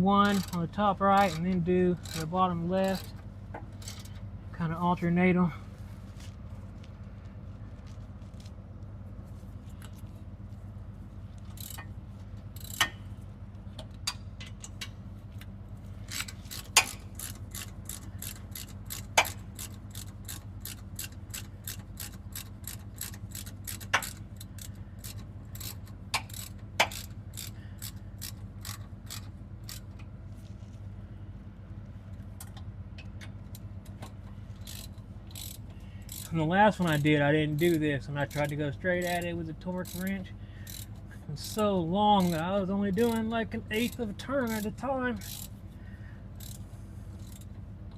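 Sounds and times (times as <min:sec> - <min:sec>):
steady low hum: 0:00.0 - 0:47.9
ratchet pawl clicks: 0:00.2 - 0:00.6, 0:02.0 - 0:03.2, 0:11.6 - 0:11.9, 0:12.5 - 0:13.0, 0:16.1 - 0:30.1, 0:34.6 - 0:45.6, 0:46.4 - 0:47.6.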